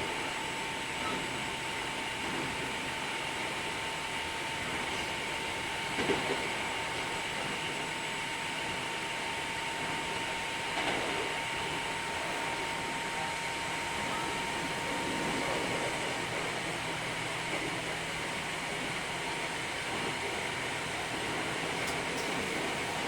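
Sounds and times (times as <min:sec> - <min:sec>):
thin steady whine: 0:01.0 - 0:23.0
train wheels rumbling: 0:10.7 - 0:23.0.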